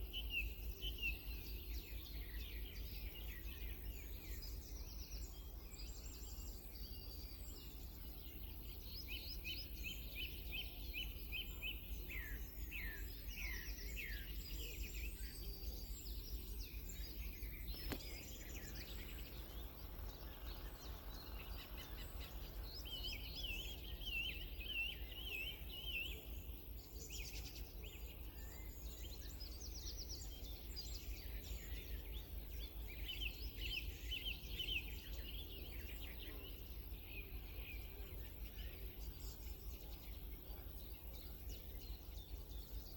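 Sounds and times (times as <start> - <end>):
songbirds singing: 0.0 - 42.9.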